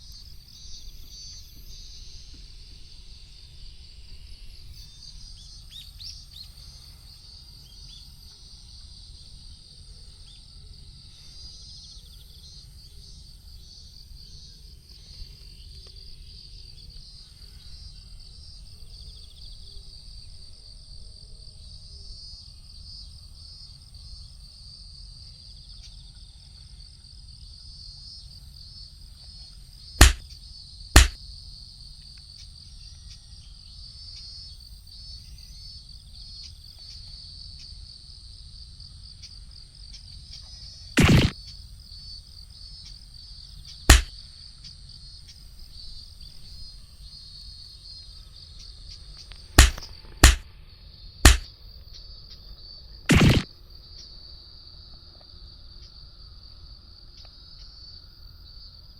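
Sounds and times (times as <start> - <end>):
sharp loud knocks: 31.0 - 31.2, 41.0 - 41.3, 49.6 - 50.4, 53.1 - 53.4.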